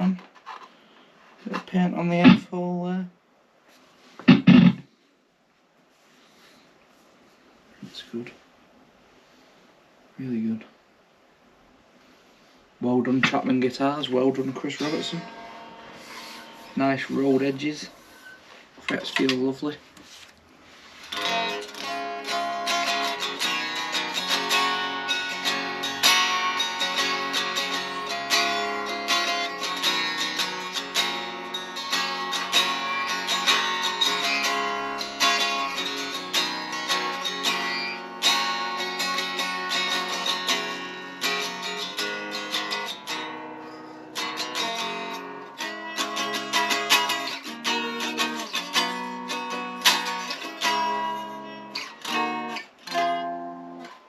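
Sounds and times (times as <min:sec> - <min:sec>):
electric guitar playing: 0:13.2 - 0:18.2, 0:21.0 - 0:54.0.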